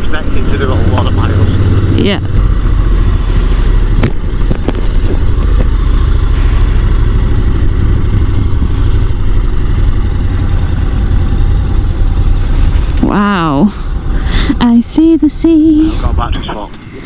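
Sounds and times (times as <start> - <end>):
motorcycle engine running: 0.0 - 17.0
wind noise rushing: 1.4 - 13.1.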